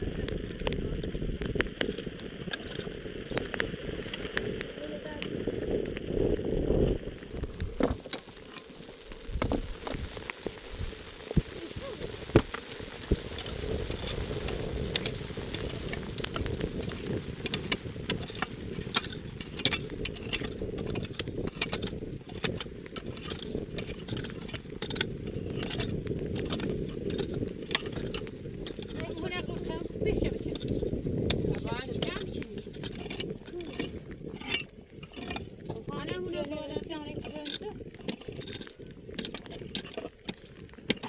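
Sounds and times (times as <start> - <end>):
rain pattering: 0.0 - 6.2, 6.9 - 41.0
steady low rumble: 0.0 - 39.5.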